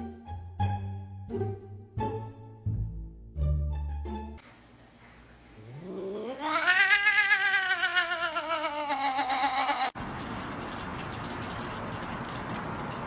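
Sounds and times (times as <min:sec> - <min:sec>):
cat yowling: 0:05.6 - 0:10.0.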